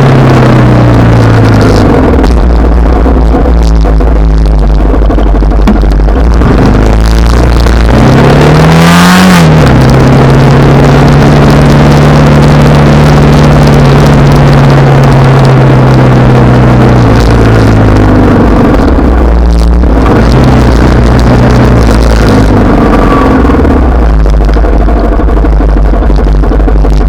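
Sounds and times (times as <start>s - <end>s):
motorcycle engine accelerating: 0.0s - 27.0s
wind rumble on microphone: 0.0s - 27.0s.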